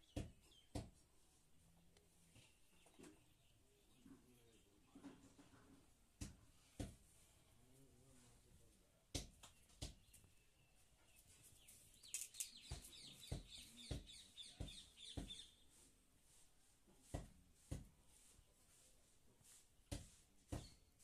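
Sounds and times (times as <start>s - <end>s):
soft knocks and bumps: 4.0s - 7.2s, 16.9s - 18.1s, 19.8s - 21.0s.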